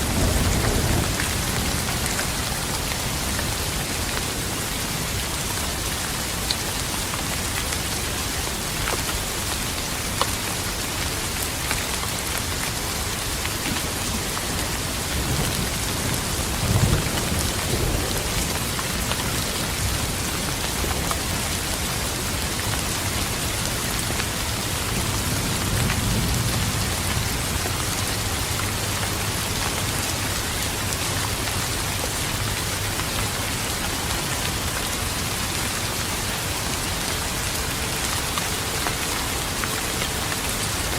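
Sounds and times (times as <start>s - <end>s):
thunder rumble: 0.0s - 3.6s
steady rain: 0.0s - 40.9s.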